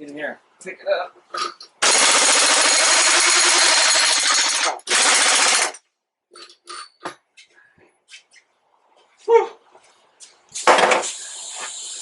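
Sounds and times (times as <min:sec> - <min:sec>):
pneumatic impact wrench hammering: 0:01.8 - 0:05.8, 0:10.6 - 0:12.0.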